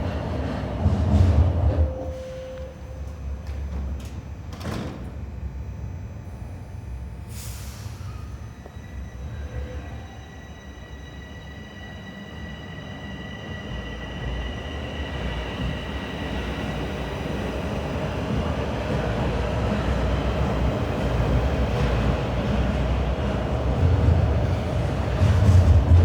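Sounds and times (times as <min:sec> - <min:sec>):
subway train rumbling on rails: 0:00.0 - 0:26.0.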